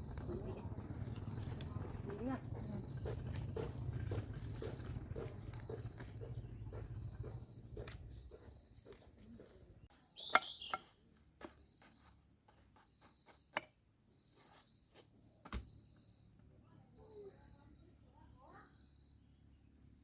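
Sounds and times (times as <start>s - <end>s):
low pulsing rumble: 0.0s - 8.3s
insects trilling: 0.0s - 20.0s.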